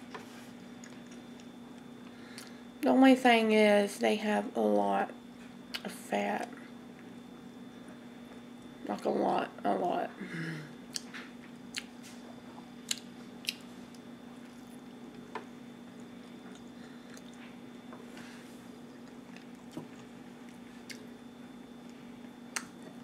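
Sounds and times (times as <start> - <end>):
steady low hum: 0.0 - 23.0
person chewing food: 10.9 - 15.3, 15.9 - 21.2.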